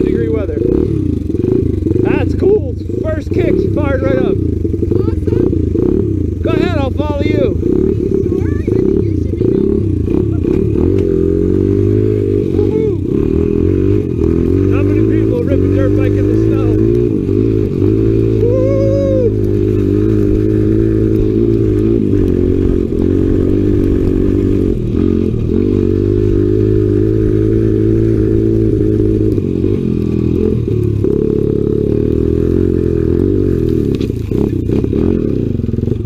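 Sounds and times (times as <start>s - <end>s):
off-road engine running: 0.0s - 36.0s.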